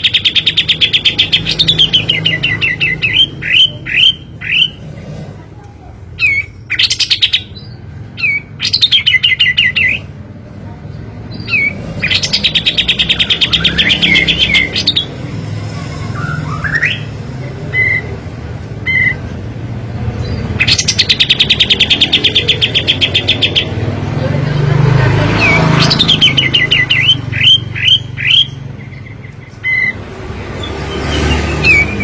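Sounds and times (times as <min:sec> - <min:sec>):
bird chirps and rising calls: 0:11.4 - 0:18.2, 0:25.2 - 0:32.0.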